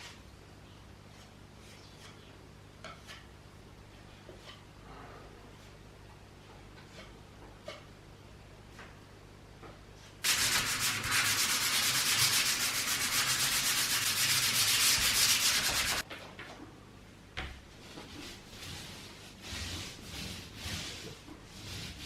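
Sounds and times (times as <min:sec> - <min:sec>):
sanding filler rubbing hiss: 0:10.2 - 0:16.0.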